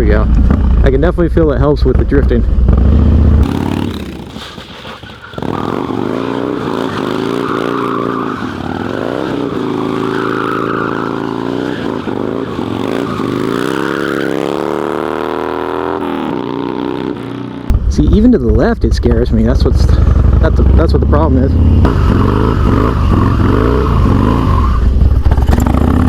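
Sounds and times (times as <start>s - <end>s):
motorcycle engine at high revs: 2.5s - 4.4s, 5.3s - 17.7s, 19.9s - 26.0s.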